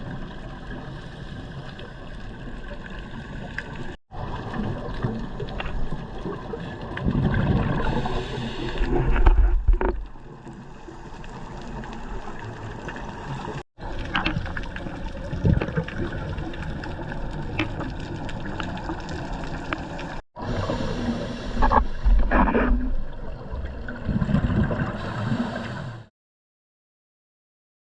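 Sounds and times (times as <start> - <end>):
regulator bubbles: 10.0 - 20.2.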